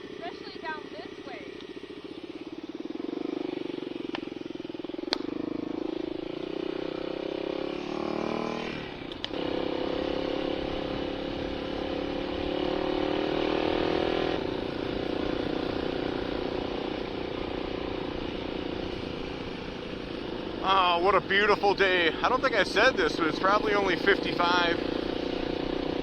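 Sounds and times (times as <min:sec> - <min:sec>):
dirt bike engine running: 0:00.0 - 0:26.0
sharp crack: 0:05.0 - 0:05.4.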